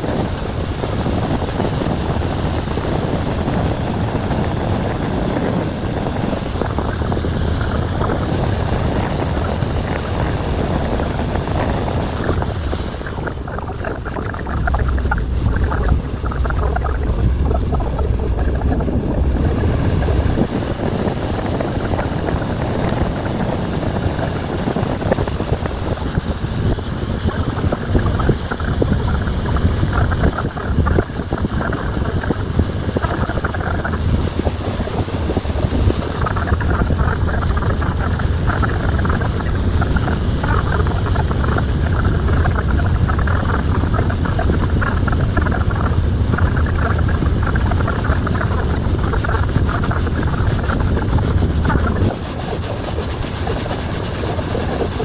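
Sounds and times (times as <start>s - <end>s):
boat under way rumbling: 0.0s - 55.0s
wind buffeting microphone: 0.0s - 55.0s.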